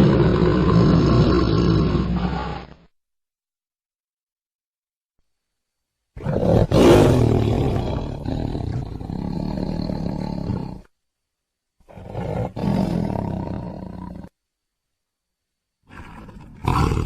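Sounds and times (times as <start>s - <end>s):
tiger roaring: 0.0s - 2.8s, 6.2s - 10.9s, 11.8s - 14.3s, 15.9s - 17.0s.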